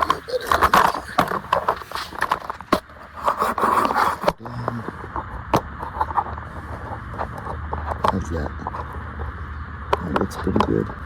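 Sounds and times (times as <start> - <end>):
sharp clicks and knocks: 0.0 - 9.3
camera handling scraping: 0.0 - 9.4.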